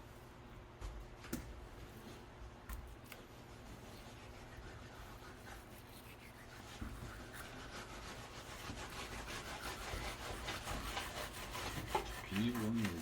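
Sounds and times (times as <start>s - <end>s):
knife scraping fish: 5.1s - 13.0s.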